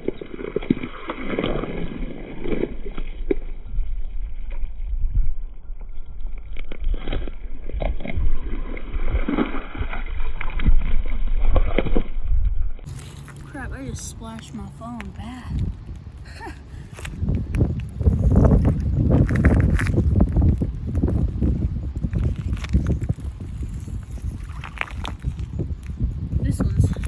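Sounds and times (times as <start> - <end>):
wind rumbling on microphone: 0.0 - 27.0
puddle water splashing: 12.9 - 27.0.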